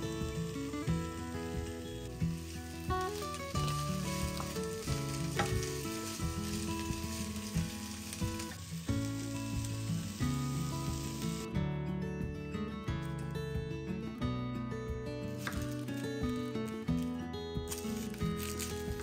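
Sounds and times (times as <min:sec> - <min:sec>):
vegetables sizzling in a frying pan: 0:00.0 - 0:11.5, 0:15.3 - 0:19.0
instrumental background music: 0:00.0 - 0:19.0.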